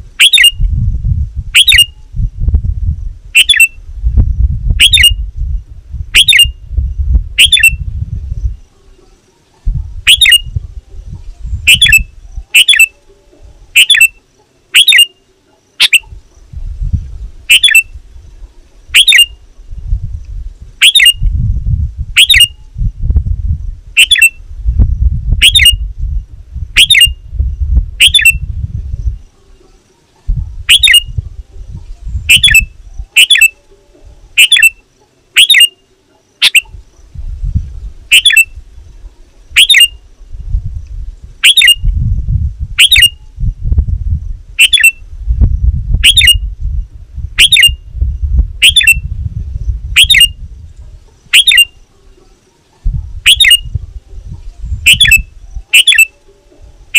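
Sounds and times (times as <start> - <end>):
bird sharp sweeping calls: 0.2 - 0.7, 1.6 - 2.0, 3.4 - 3.8, 4.8 - 5.2, 6.1 - 6.6, 7.4 - 7.8, 8.4 - 10.6, 11.2 - 16.5, 17.4 - 18.0, 18.9 - 19.4, 20.8 - 21.2, 22.2 - 22.6, 24.0 - 24.4, 25.4 - 25.9, 26.7 - 27.2, 28.0 - 31.2, 31.8 - 37.1, 38.1 - 38.6, 39.5 - 40.0, 41.4 - 41.9, 42.8 - 43.2, 44.6 - 45.0, 46.0 - 46.5, 47.4 - 47.8, 48.6 - 49.1, 49.9 - 50.5, 51.2 - 56.9.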